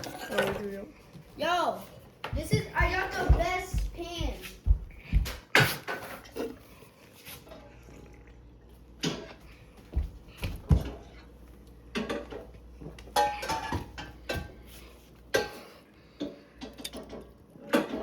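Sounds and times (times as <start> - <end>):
pans and utensils clattering: 0.0 - 0.8, 5.5 - 6.7, 11.9 - 12.5, 13.1 - 14.6, 15.3 - 18.0.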